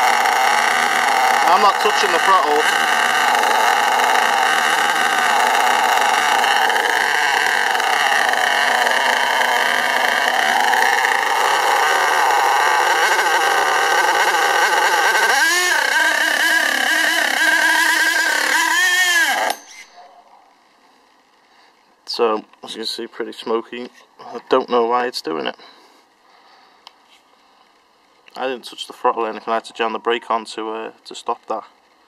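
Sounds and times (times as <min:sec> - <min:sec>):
model engine high whine: 0:00.0 - 0:20.0.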